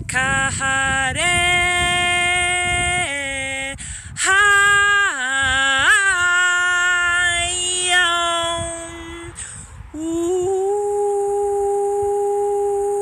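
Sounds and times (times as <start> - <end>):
woman singing wordless tones: 0.0 - 9.4, 10.0 - 13.0
breath: 3.8 - 4.2, 9.4 - 9.8.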